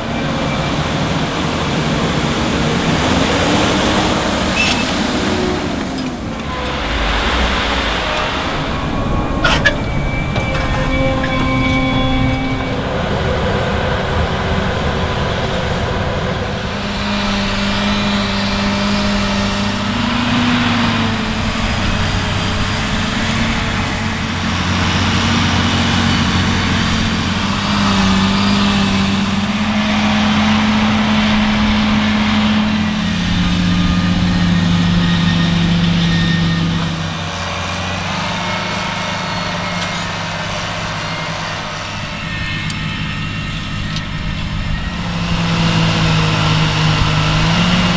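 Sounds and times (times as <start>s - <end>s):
mechanical clatter: 0.0s - 13.2s
heavy diesel engine running: 0.0s - 47.9s.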